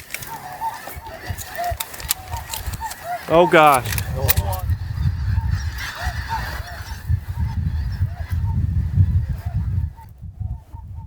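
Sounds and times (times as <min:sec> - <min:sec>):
geese honking: 0:00.0 - 0:08.3
wind rumble on microphone: 0:00.8 - 0:03.0, 0:03.8 - 0:11.0.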